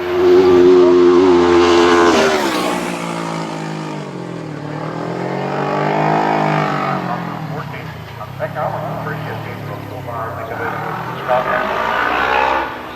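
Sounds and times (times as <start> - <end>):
motorcycle engine approaching: 0.0 - 12.9
racing motorcycle passing: 0.0 - 12.9.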